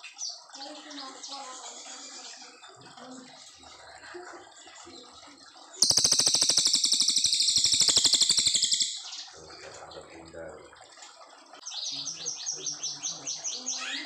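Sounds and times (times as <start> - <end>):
songbird rattling trill: 5.7 - 9.4.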